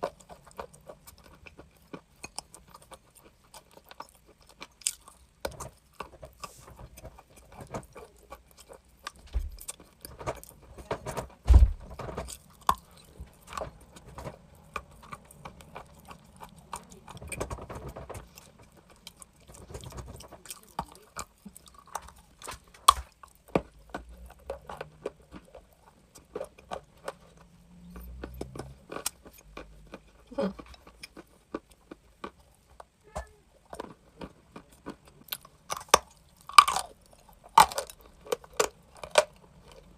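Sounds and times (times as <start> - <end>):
chewing crunchy chalk: 0.0 - 10.7, 12.2 - 33.0.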